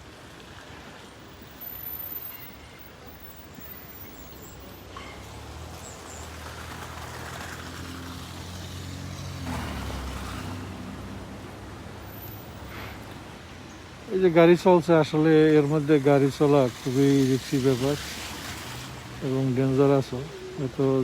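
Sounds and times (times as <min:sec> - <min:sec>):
car driving past: 0:04.3 - 0:13.4.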